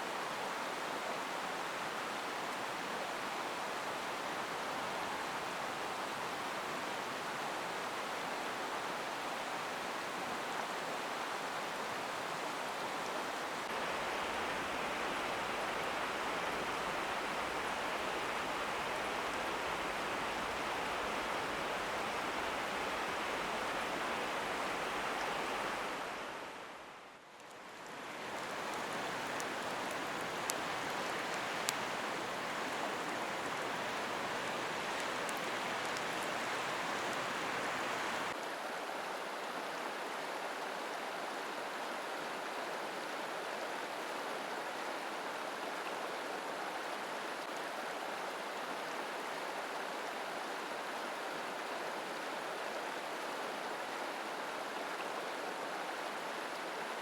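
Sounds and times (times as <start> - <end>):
stream rushing: 0.0 - 57.0.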